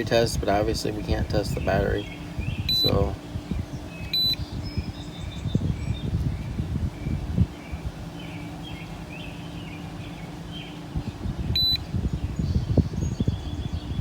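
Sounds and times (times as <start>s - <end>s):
low rumbling handling noise: 0.0s - 14.0s
faint bird chirps: 1.6s - 10.9s, 11.5s - 14.0s
short electronic beep: 4.2s - 4.4s, 11.6s - 11.8s.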